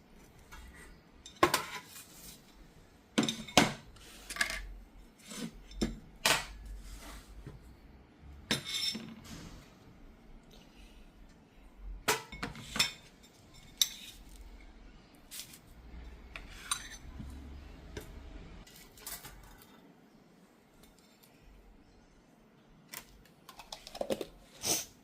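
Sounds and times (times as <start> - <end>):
cutlery and crockery clinking: 3.2 - 4.7, 8.5 - 9.2, 12.1 - 14.4, 18.6 - 19.8.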